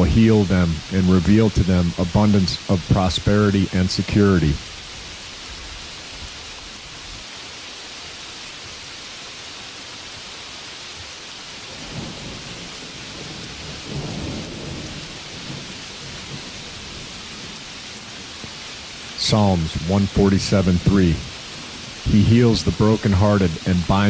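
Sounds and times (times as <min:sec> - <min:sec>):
steady rainfall: 0:00.0 - 0:24.0
low thunder rumble: 0:11.7 - 0:17.7.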